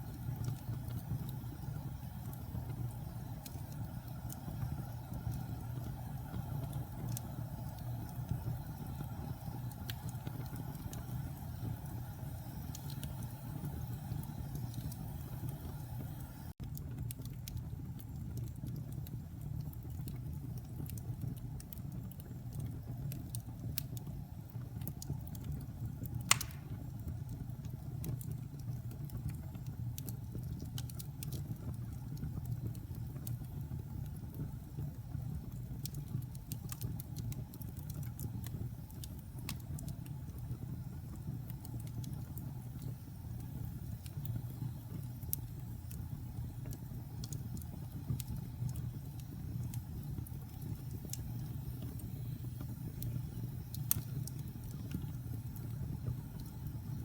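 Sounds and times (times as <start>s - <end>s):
fire burning in fireplace: 0.0s - 57.0s
small crackles: 0.0s - 57.0s
loud pop: 26.3s - 26.8s.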